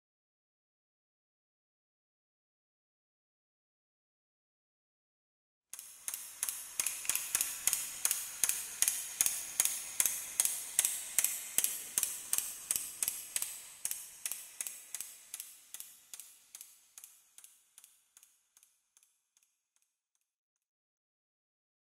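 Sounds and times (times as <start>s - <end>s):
sharp rhythmic ticking: 5.8s - 19.9s.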